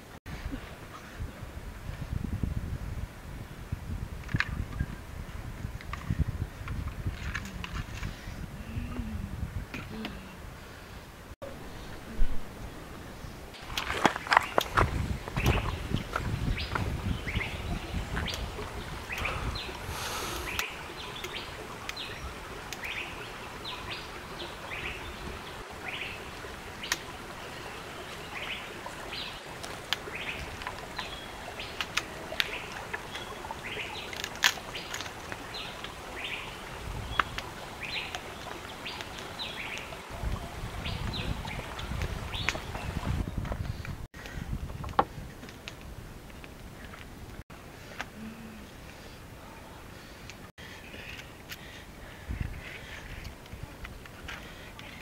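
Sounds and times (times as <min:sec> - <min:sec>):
birds chirping: 0:09.8 - 0:44.1.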